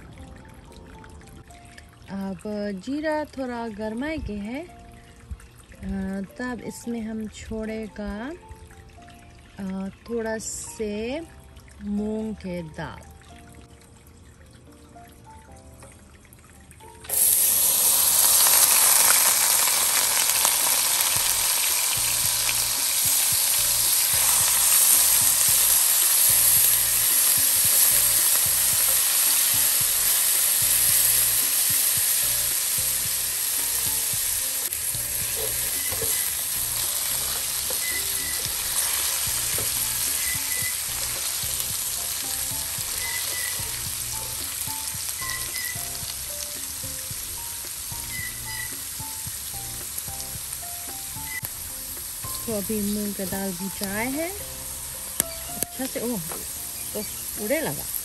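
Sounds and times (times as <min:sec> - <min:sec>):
lentils sizzling in hot fat: 0:17.1 - 0:58.0.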